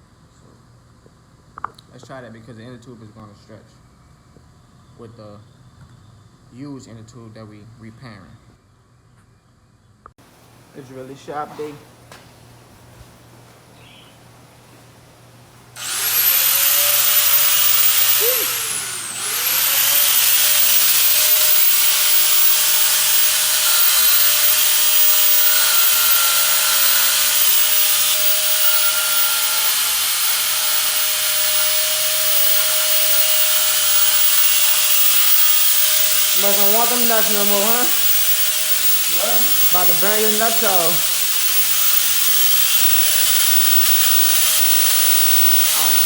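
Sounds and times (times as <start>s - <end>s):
angle grinder cutting chain: 15.8s - 46.0s.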